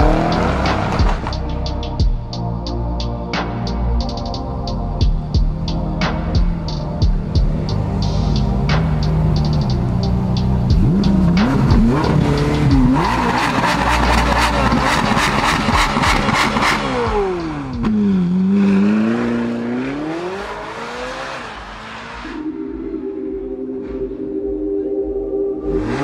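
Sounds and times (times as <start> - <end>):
car engine revving: 0.0 - 2.0, 4.6 - 22.5, 25.6 - 26.0.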